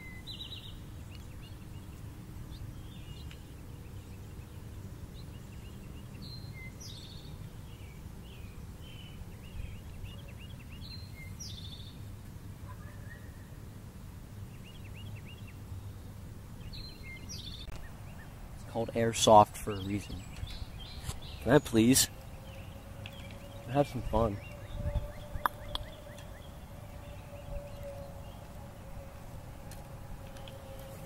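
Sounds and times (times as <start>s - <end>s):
low outdoor rumble: 0.0s - 31.0s
songbird chirping: 0.0s - 31.0s.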